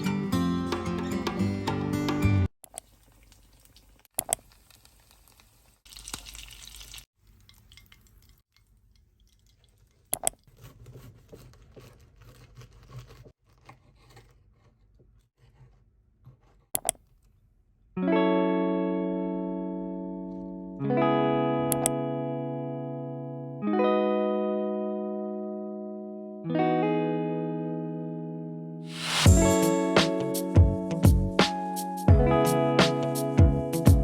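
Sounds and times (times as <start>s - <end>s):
guitar chord ringing: 18.0s - 34.0s.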